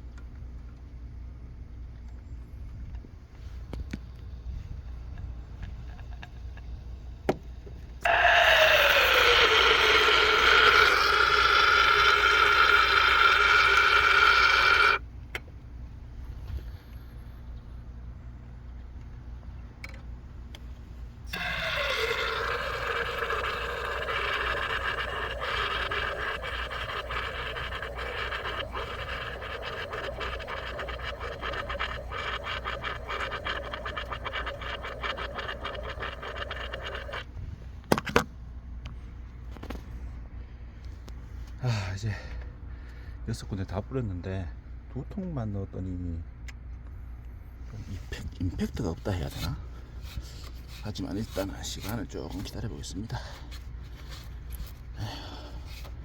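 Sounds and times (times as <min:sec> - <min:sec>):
spray sputtering crackle: 0:21.3 - 0:37.2.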